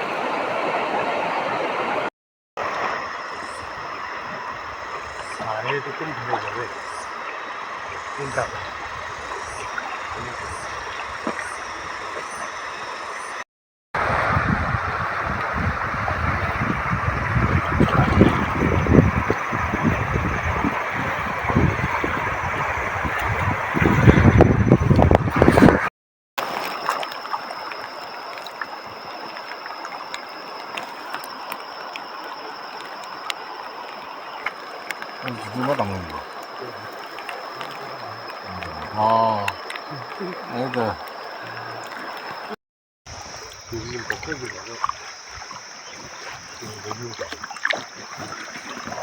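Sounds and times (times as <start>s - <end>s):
river water rushing: 0.0s - 13.1s, 14.0s - 24.4s, 26.4s - 49.0s
wind on microphone: 7.9s - 12.1s, 14.0s - 25.9s.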